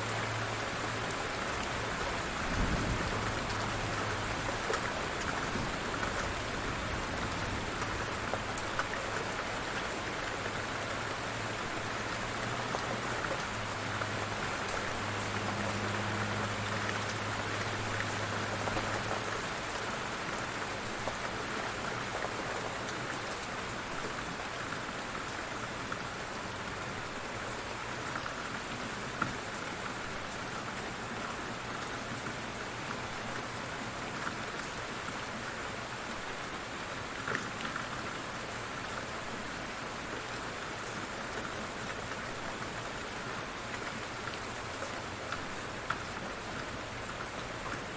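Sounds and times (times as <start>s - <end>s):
light rain patter: 0.0s - 47.9s.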